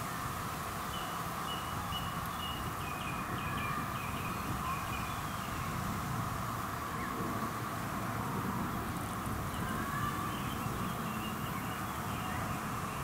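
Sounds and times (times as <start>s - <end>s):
steady background hiss: 0.0s - 13.0s
bird singing: 0.9s - 5.8s, 9.5s - 13.0s.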